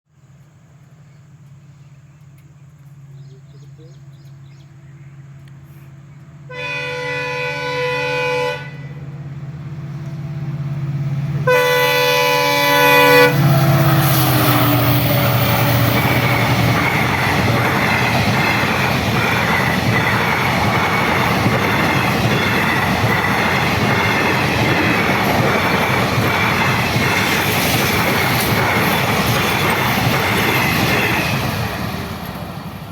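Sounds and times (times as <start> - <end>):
diesel locomotive engine drone: 0.2 - 32.9
passing train rumble: 0.4 - 32.9
train horn blasts: 6.5 - 9.1, 11.4 - 16.6
wheels clacking over rail joints: 13.7 - 32.9.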